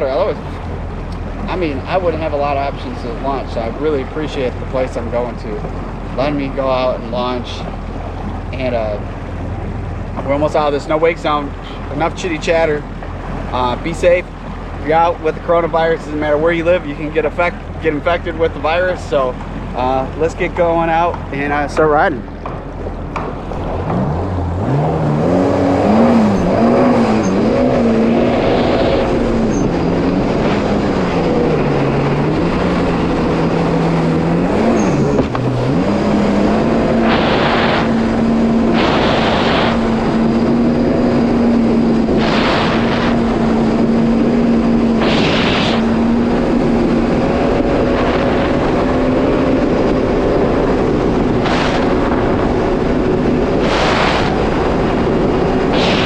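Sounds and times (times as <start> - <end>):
jet ski engine revving: 0.0 - 56.0
bursts of rushing noise: 22.4 - 56.0.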